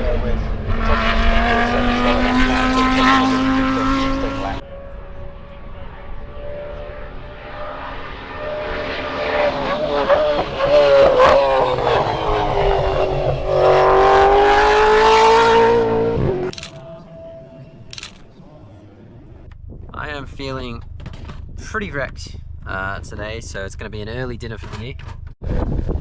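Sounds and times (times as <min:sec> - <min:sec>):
race car engines at high revs: 0:00.0 - 0:25.4.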